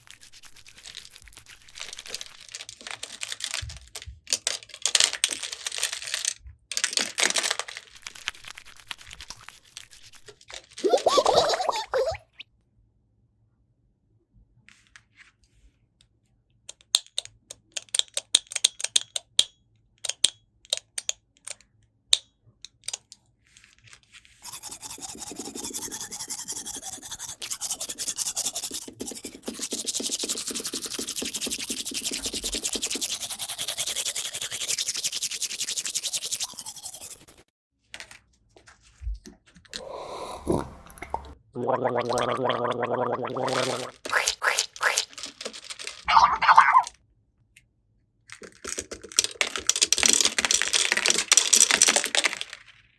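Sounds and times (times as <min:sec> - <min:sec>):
fast scrubbing: 0:00.0 - 0:02.5, 0:08.0 - 0:12.1, 0:24.4 - 0:37.4, 0:42.2 - 0:46.9.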